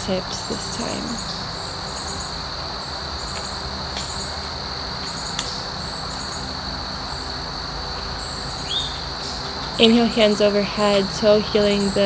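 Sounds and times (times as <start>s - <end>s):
insects trilling: 0.0s - 12.0s
sharp click: 5.4s - 5.6s.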